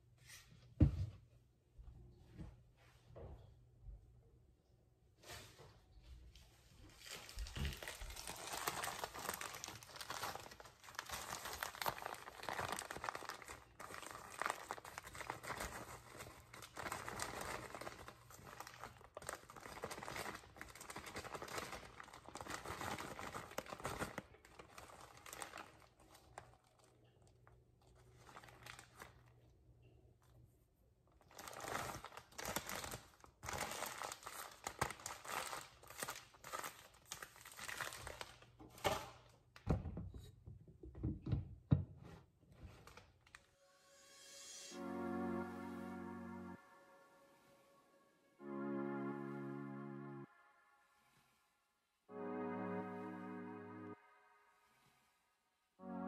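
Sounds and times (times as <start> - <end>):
plastic or paper crinkling: 6.8 - 29.4, 31.2 - 39.3, 42.6 - 43.5.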